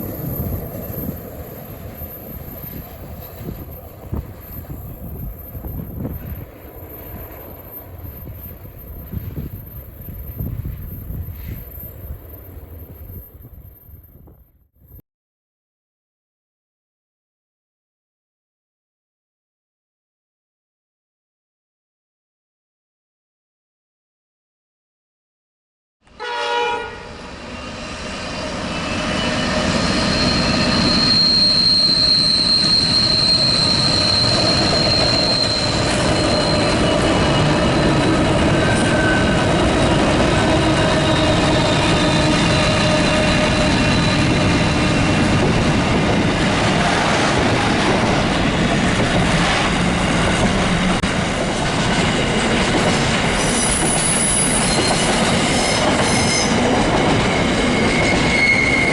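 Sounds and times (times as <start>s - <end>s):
high wheel squeal: 0.0s - 14.2s, 27.0s - 46.6s, 53.3s - 58.9s
train running noise: 0.0s - 14.5s, 26.1s - 58.9s
train horn blast: 26.1s - 27.3s.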